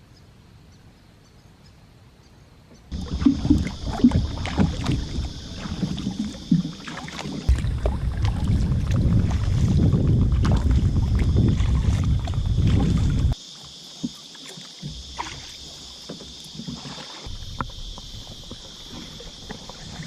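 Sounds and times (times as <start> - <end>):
wind rumble on microphone: 2.9 - 6.8, 7.4 - 13.4, 17.3 - 19.0
water rushing: 2.9 - 20.0
water splashing: 2.9 - 20.0.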